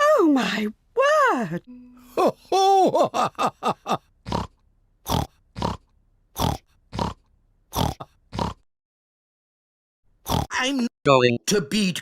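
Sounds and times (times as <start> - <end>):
cartoon pig snorting: 4.2 - 8.7, 10.2 - 10.5.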